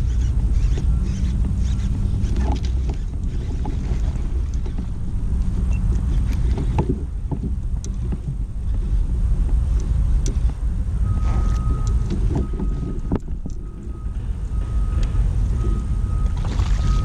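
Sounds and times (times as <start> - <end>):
wind rumbling on microphone: 0.0 - 17.0
small knocks and clicks: 0.1 - 8.9, 9.5 - 10.6.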